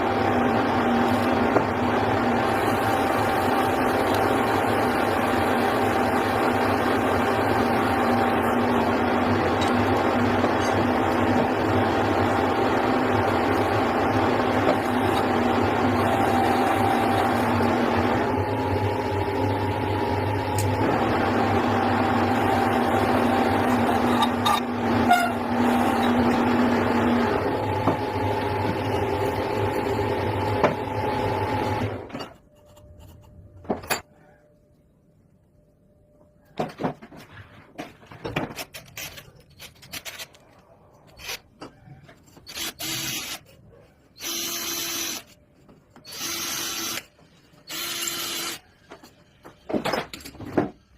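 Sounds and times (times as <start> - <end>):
machine tool humming and whining: 0.0 - 32.6, 46.0 - 48.6.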